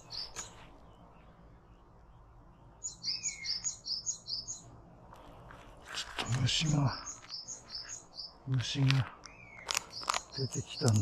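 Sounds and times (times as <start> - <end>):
songbird high chirps: 0.0 - 5.3, 6.1 - 11.0
low slurred bird whistle: 2.8 - 4.6.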